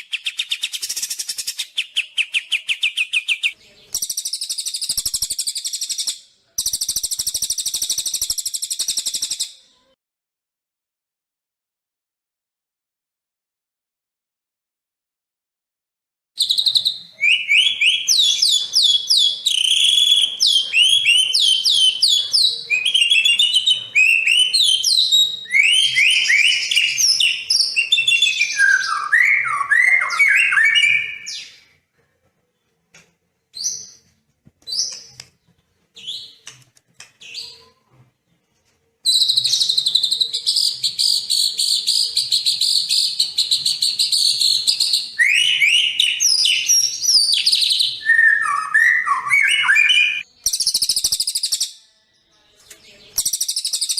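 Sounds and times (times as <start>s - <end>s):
songbird singing trills and whistles: 0.0s - 9.9s, 16.4s - 31.6s, 39.0s - 52.0s, 52.7s - 53.9s.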